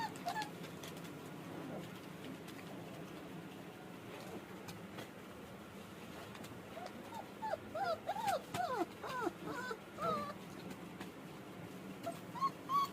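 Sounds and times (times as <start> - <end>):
puppy whimpering: 0.0 - 0.7, 6.7 - 10.5, 12.0 - 12.9.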